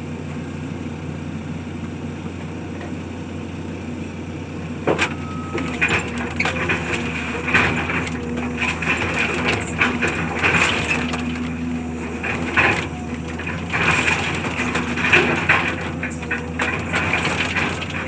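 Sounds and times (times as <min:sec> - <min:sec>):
wood cracking and crunching: 0:04.9 - 0:18.0
machine engine running: 0:05.2 - 0:18.0.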